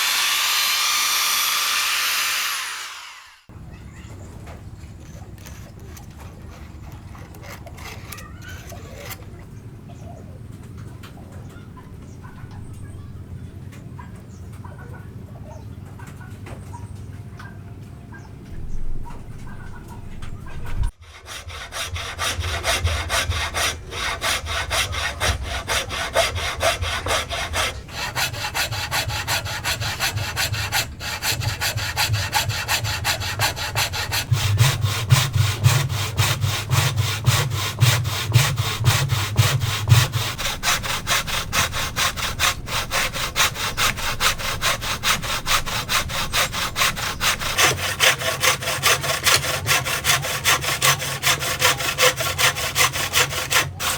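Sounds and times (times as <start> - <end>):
hand saw cutting wood: 0.0 - 3.5, 5.0 - 9.5, 20.9 - 53.9.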